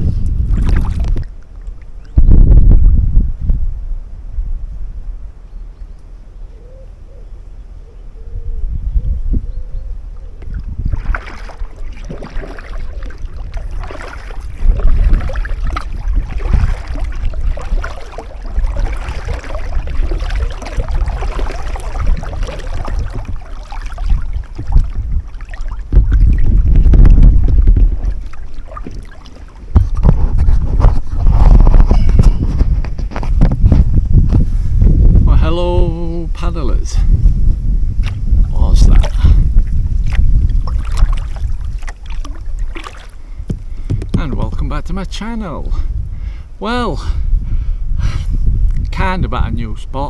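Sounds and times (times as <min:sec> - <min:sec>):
water splashing from paddling: 0:00.0 - 0:02.1, 0:10.2 - 0:34.6, 0:35.9 - 0:45.5
wind buffeting microphone: 0:00.0 - 0:50.0.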